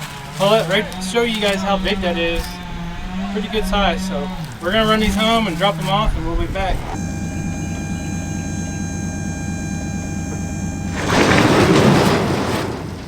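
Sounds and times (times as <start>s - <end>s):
truck engine rumble: 0.0s - 13.0s
steady high tone: 4.0s - 12.1s.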